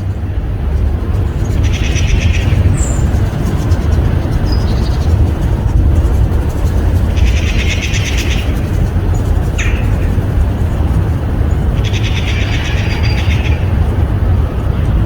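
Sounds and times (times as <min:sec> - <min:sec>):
songbirds trilling: 0:00.0 - 0:15.0
steady low rumble: 0:00.0 - 0:15.0.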